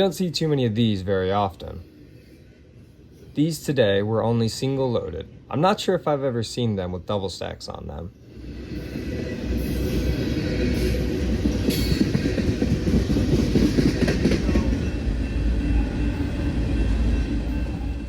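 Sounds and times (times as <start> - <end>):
freight train rumbling past: 0.0 - 18.0
wheels clicking on rails: 10.7 - 15.0.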